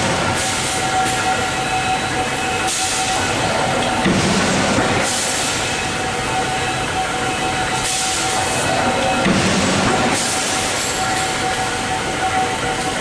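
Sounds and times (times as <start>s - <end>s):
machinery humming: 0.0s - 13.0s
machine hiss: 2.6s - 3.4s, 7.7s - 11.7s.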